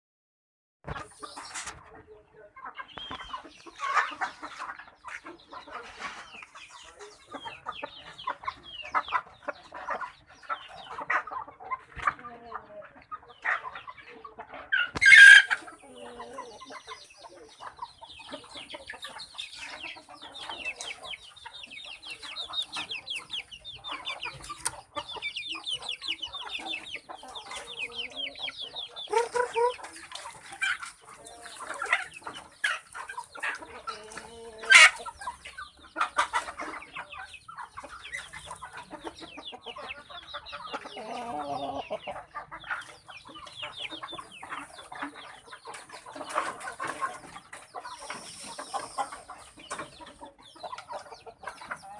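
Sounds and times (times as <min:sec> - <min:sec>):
chickens clucking: 0:00.8 - 0:51.9
chicken squawking: 0:14.6 - 0:16.6, 0:22.1 - 0:35.4.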